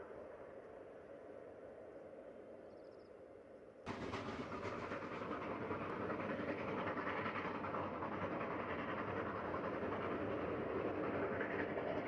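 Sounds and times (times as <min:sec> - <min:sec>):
train running along rails: 0:03.9 - 0:12.0.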